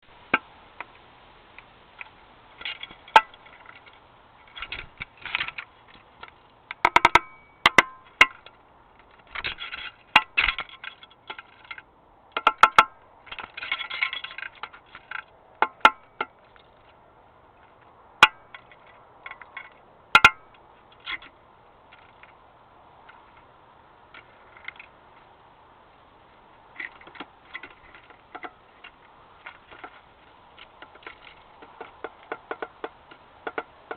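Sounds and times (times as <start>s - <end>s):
woodpecker knocking on plastic: 6.7s - 8.6s, 30.6s - 33.9s.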